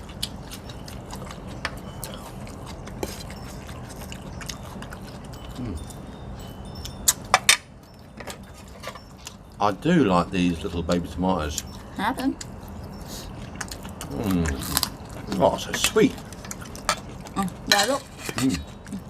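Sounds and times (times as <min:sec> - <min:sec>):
low background hum: 0:00.0 - 0:19.0
tableware clicks and clinks: 0:06.8 - 0:09.4, 0:17.7 - 0:19.0.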